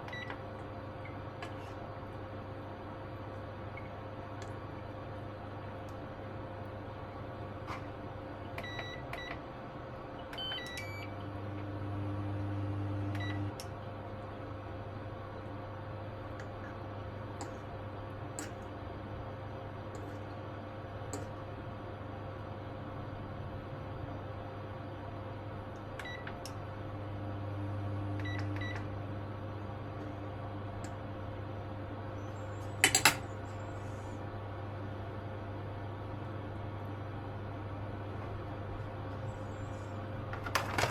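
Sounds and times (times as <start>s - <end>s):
appliance control panel beeps: 0.0s - 0.4s, 8.6s - 9.4s, 10.2s - 11.2s, 13.1s - 13.6s, 26.0s - 26.3s, 28.2s - 28.9s
appliance mains hum: 0.0s - 40.9s.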